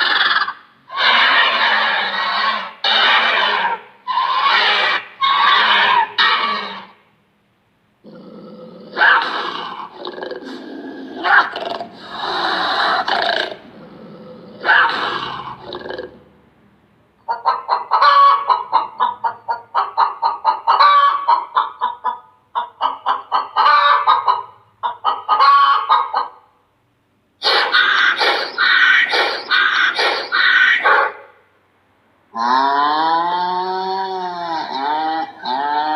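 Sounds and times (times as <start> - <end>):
chickens calling harshly: 0.0 - 7.0, 8.9 - 13.7, 14.6 - 15.8, 17.2 - 26.5, 27.4 - 31.3
hen clucking cackle: 0.0 - 7.0, 17.2 - 26.5, 27.4 - 31.3.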